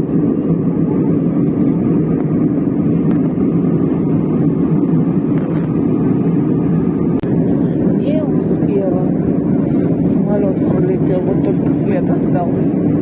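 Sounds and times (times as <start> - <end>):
airliner cabin engine rush: 0.0 - 13.0.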